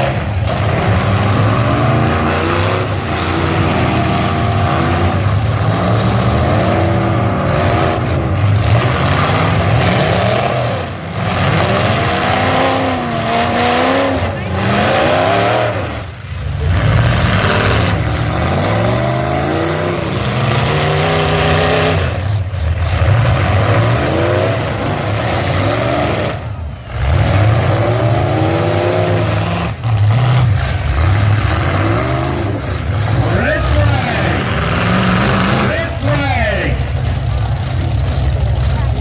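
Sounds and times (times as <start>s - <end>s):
truck engines revving: 0.0s - 39.0s.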